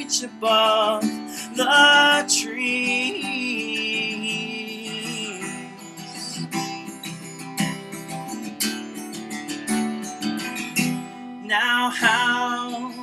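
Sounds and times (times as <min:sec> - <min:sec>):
person singing: 0:00.0 - 0:07.4, 0:11.1 - 0:13.0
acoustic guitar strumming: 0:00.0 - 0:13.0.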